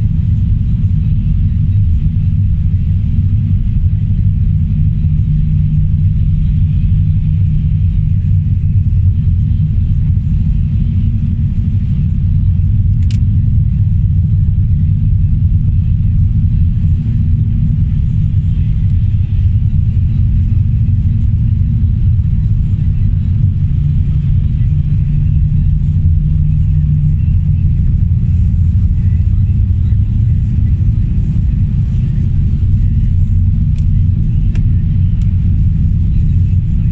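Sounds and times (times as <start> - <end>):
car engine and road noise: 0.0 - 36.9
sharp click: 12.9 - 13.3.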